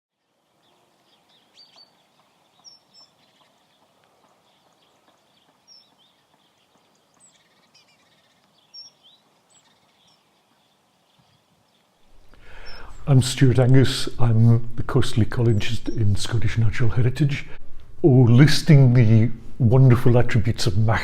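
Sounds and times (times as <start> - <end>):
faint bird chirps: 0.1 - 13.1
soft steady hiss: 0.1 - 21.0.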